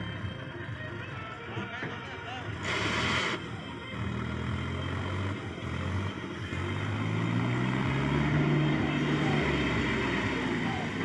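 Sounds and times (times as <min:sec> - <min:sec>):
heavy diesel engine running: 0:02.5 - 0:11.0.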